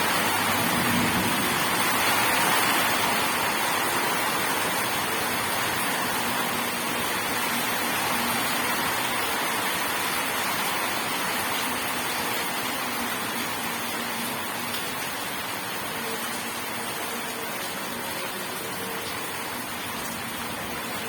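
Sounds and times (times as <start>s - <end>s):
heavy rainfall: 0.0s - 21.0s.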